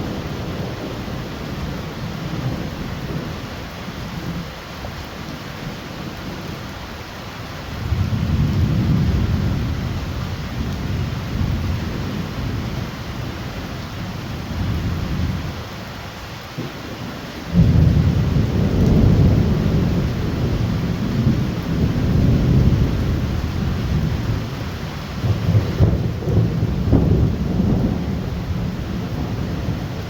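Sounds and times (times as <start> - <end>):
heavy rain falling: 0.0 - 30.0
rolling thunder: 7.8 - 15.6, 16.6 - 30.0.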